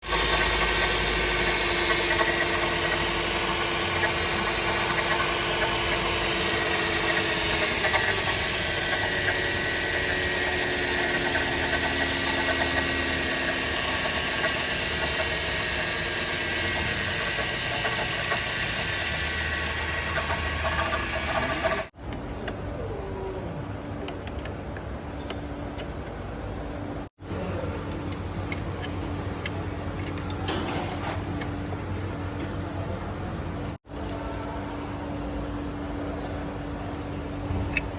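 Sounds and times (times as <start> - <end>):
loud water pump noise: 0.0 - 22.0
car engine running: 0.1 - 22.4.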